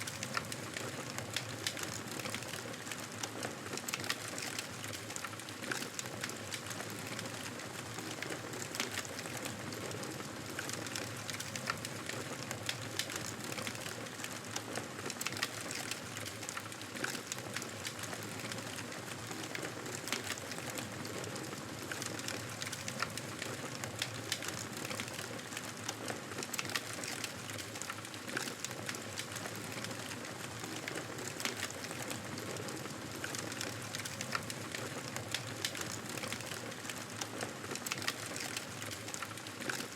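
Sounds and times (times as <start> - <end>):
campfire crackling: 0.0 - 2.9, 15.0 - 39.9
fire pops and snaps: 0.0 - 7.4, 10.1 - 21.0, 22.0 - 39.9.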